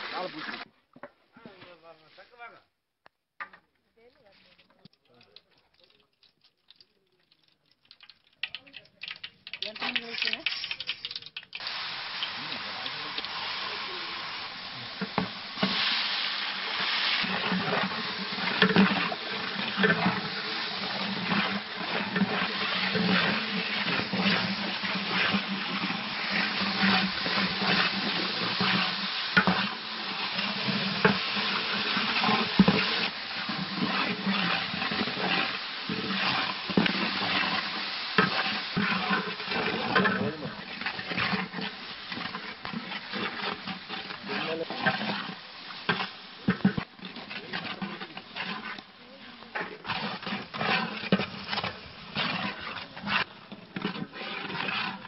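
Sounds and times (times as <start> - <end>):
food sizzling in oil: 0.0 - 0.7, 7.8 - 55.0
metal ladle scraping pot: 14.9 - 55.0.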